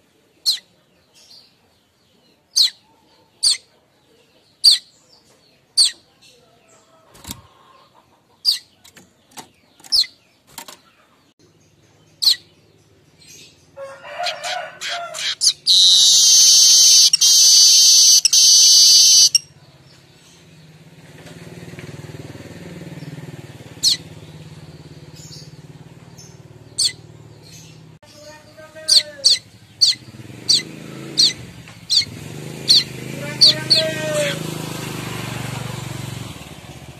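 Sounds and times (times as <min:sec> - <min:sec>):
bird chirps: 0:00.4 - 0:06.2, 0:08.4 - 0:13.7, 0:15.2 - 0:20.8, 0:23.0 - 0:33.9
bird chattering into harsh buzz: 0:14.9 - 0:19.4.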